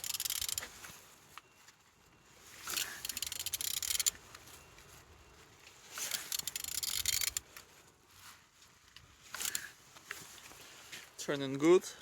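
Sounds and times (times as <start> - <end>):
wrench rapid clicking: 0.0 - 0.7, 2.7 - 4.2, 6.0 - 7.4.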